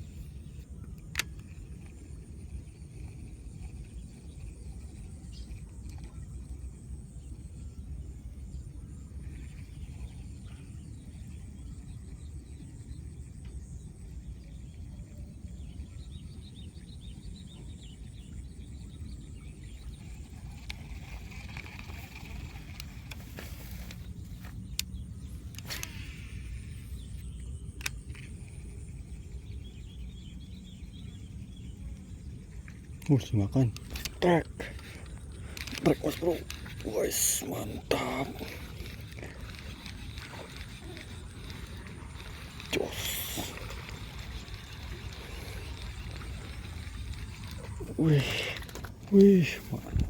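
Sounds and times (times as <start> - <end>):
low outdoor rumble: 21.9 - 50.0
sharp clicks: 23.9 - 26.3, 27.2 - 28.7, 33.0 - 49.3.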